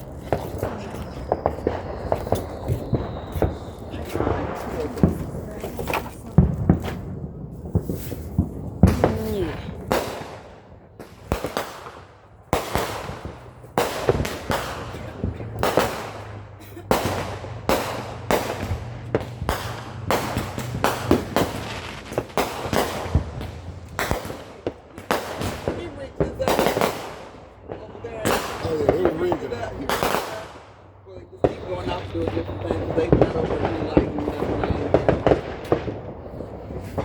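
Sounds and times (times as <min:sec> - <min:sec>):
fireworks bangs with echo: 0:00.0 - 0:37.0.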